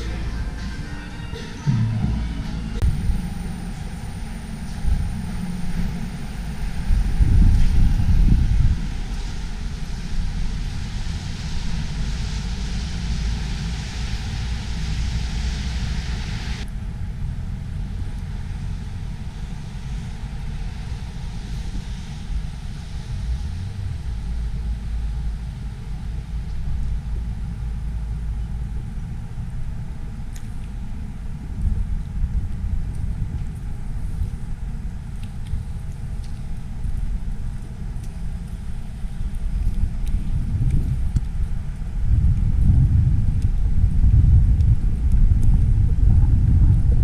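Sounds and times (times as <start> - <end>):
high hiss: 0.0 - 16.7
road traffic rumble: 0.0 - 47.0
wind on microphone: 0.0 - 47.0.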